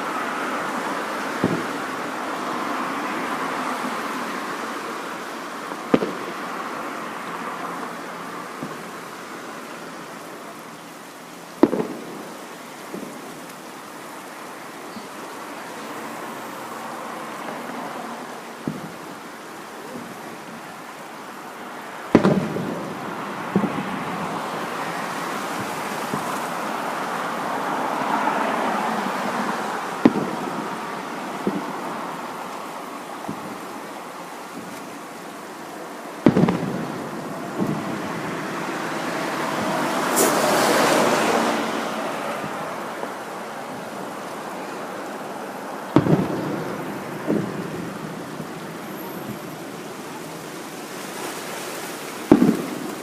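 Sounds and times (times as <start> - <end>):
fireworks bangs with rumbling echo: 1.3 - 2.1, 5.6 - 6.6, 7.3 - 9.3, 11.5 - 13.6, 18.6 - 20.7, 22.1 - 27.3, 29.3 - 32.4, 33.2 - 33.8, 36.1 - 44.8, 45.8 - 50.2, 52.3 - 53.0.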